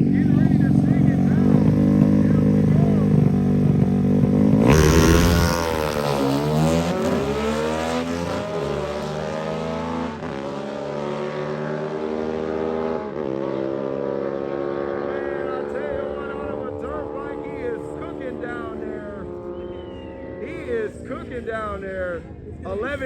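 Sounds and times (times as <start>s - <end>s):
motorcycle engine revving and launching: 1.4s - 11.3s.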